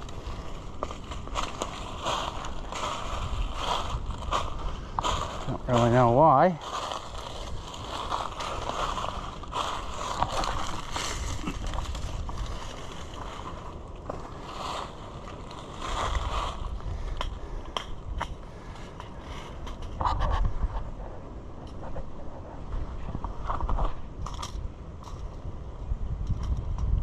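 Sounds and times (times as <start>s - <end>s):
twigs snapping: 0.0s - 6.0s, 6.6s - 18.4s
dry leaves crunching and rustling: 0.0s - 17.2s.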